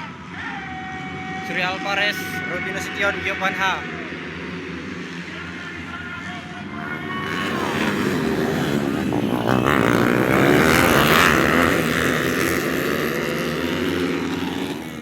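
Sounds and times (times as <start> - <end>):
motorcycles revving and accelerating: 4.0 - 5.6, 6.6 - 15.0.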